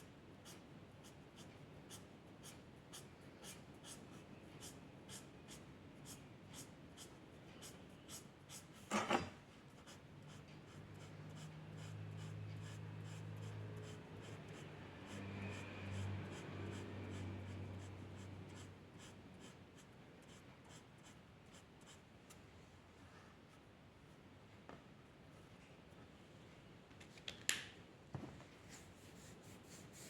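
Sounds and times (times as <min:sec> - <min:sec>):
pencil scratching on paper: 0:00.4 - 0:08.9, 0:09.7 - 0:22.0.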